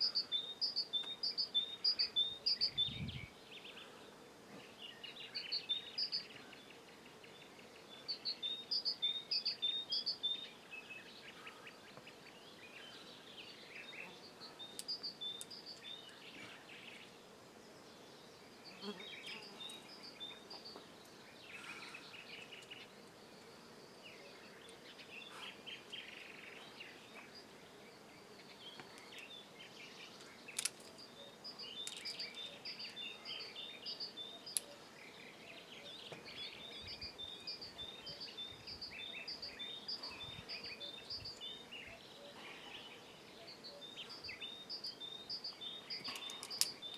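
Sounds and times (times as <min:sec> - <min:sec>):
faint steady hiss: 0:00.0 - 0:46.9
small birds chirping: 0:00.0 - 0:46.9.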